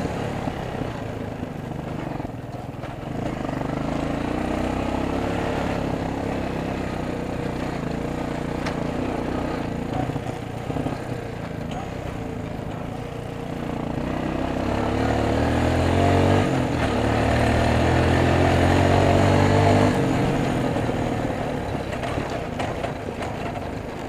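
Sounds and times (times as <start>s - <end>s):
atv engine accelerating: 0.0s - 24.0s.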